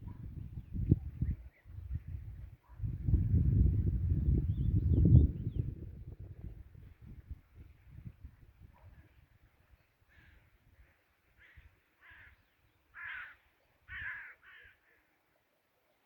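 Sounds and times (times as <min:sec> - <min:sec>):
crow cawing: 0:11.4 - 0:15.1.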